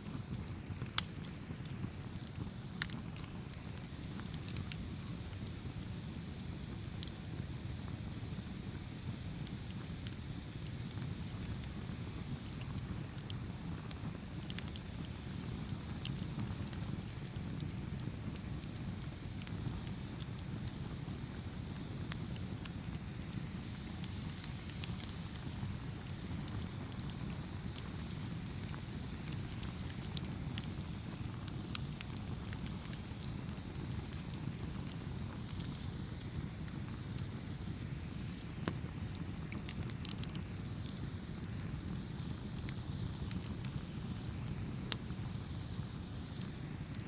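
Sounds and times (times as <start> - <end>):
burning wood crackling and popping: 0.0 - 47.0
campfire flames rumbling: 0.0 - 47.0.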